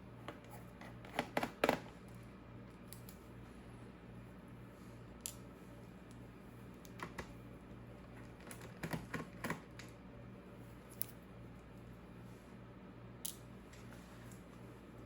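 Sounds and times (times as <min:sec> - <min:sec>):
hands clicking and tapping laptop: 0:06.9 - 0:07.4, 0:08.3 - 0:09.9.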